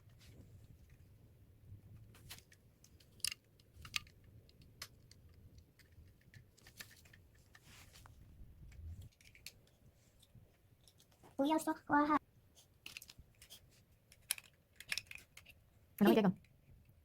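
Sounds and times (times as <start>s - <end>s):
plastic pieces clicking: 2.4s - 7.6s, 12.8s - 13.5s, 14.1s - 16.2s.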